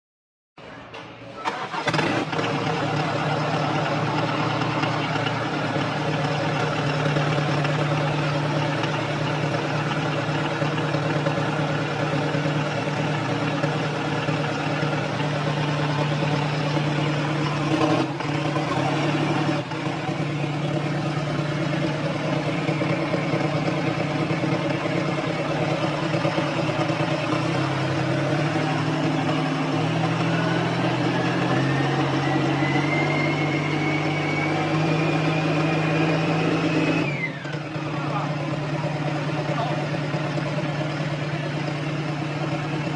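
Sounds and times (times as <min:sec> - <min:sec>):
diesel engine running: 0:00.8 - 0:42.9
whine rising in pitch: 0:27.4 - 0:38.3.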